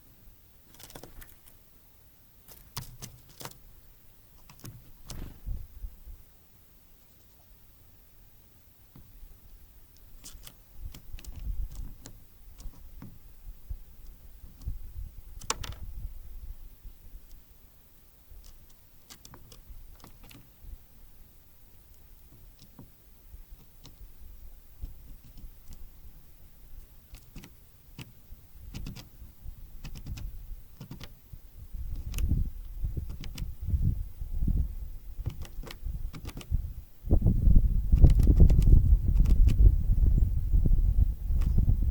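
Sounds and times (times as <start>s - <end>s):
birds pecking at feeder: 0.6s - 1.6s, 2.4s - 5.7s, 9.8s - 16.1s, 16.9s - 36.7s, 37.8s - 39.8s
birds pecking and landing on feeder: 0.7s - 1.6s, 2.5s - 3.6s, 4.4s - 5.6s.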